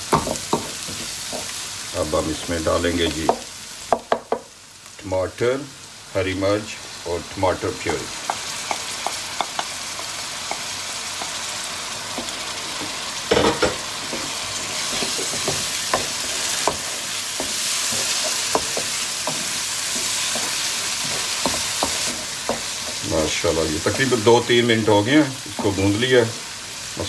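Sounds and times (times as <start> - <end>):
tomatoes sizzling in oil: 0.0 - 27.0
wooden spoon scraping pan: 12.1 - 24.9.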